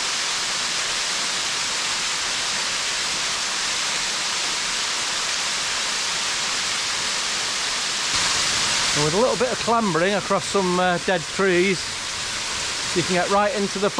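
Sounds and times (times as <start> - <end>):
small waterfall splashing: 0.0 - 13.9.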